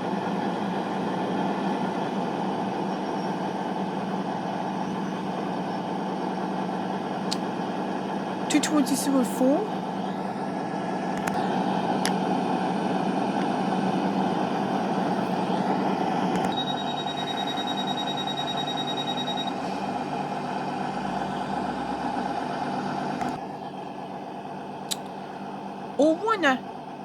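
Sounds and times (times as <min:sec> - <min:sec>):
train diesel engines humming: 0:00.0 - 0:27.0
rapid electronic beeping: 0:16.5 - 0:19.7.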